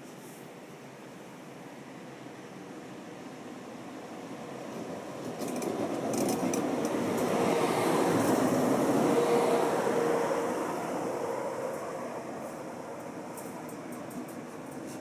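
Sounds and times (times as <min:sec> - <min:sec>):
train rolling past: 0:04.4 - 0:15.0.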